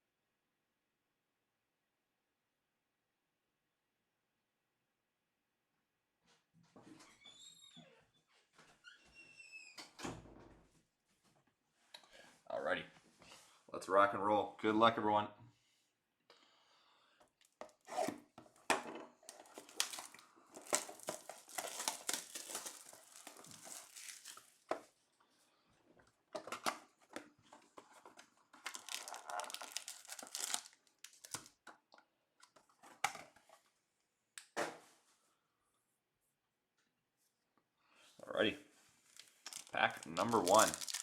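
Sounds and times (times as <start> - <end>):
box rustling as handled: 19.2 - 24.7, 39.1 - 41.0
plastic shrink wrap tearing and crinkling: 19.2 - 24.7, 28.6 - 31.6, 39.0 - 41.0.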